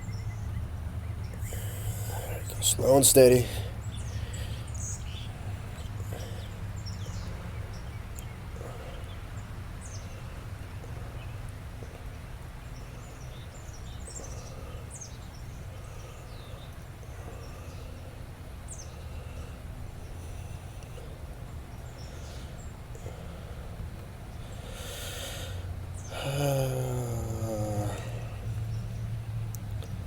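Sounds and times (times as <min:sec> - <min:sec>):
low outdoor rumble: 0:00.0 - 0:30.0.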